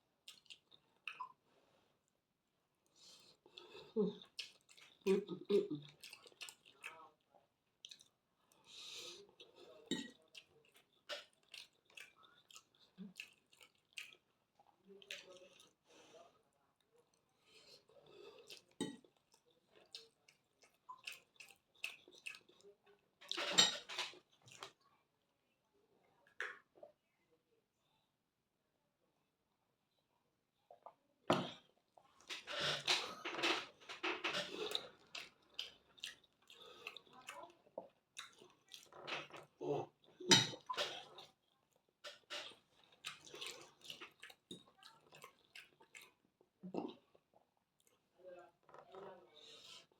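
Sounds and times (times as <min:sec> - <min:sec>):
wet chewing and lip-smacking: 0:00.2 - 0:01.4, 0:02.8 - 0:07.1, 0:07.8 - 0:15.8, 0:17.0 - 0:24.8, 0:30.7 - 0:48.1
cutlery clinking on a plate: 0:23.3 - 0:24.2.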